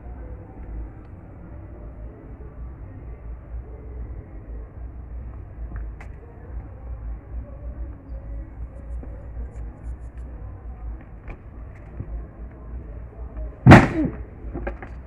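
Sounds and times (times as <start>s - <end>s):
loud thump: 13.6s - 14.9s.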